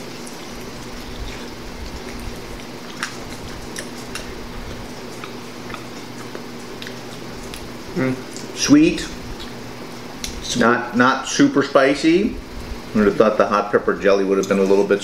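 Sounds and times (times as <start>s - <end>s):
fingers pulling meat off bones: 0.0s - 8.5s
people chewing wet smacks: 0.0s - 10.5s, 14.3s - 14.9s
steady low hum: 0.0s - 15.0s.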